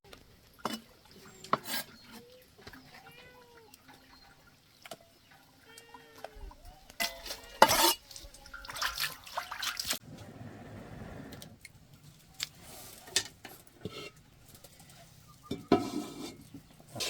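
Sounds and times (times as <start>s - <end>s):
water sloshing and splashing: 0.4s - 10.0s.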